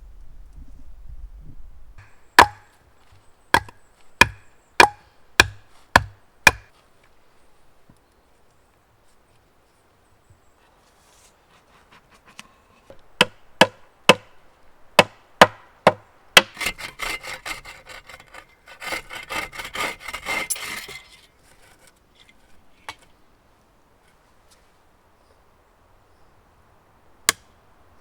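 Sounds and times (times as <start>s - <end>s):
hand saw cutting wood: 2.0s - 2.7s, 3.6s - 6.7s, 15.9s - 21.9s
sharp knocks on wood: 2.4s - 2.7s, 3.6s - 6.7s, 15.0s - 16.6s.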